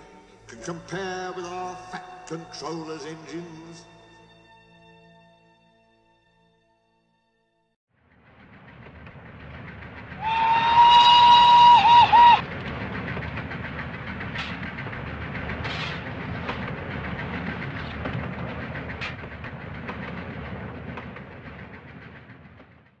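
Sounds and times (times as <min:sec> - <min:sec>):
train rumbling on rails: 0:00.0 - 0:04.3, 0:07.9 - 0:23.0
wheels clicking over rail joints: 0:08.1 - 0:23.0.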